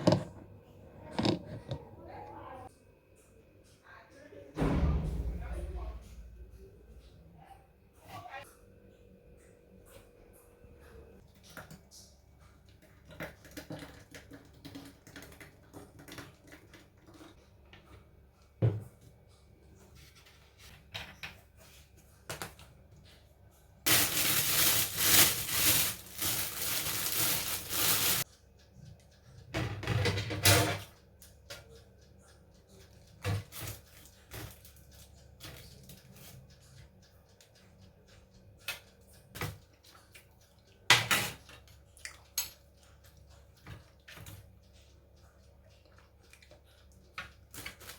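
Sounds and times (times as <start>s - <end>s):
tap running into sink: 1.1s - 1.8s.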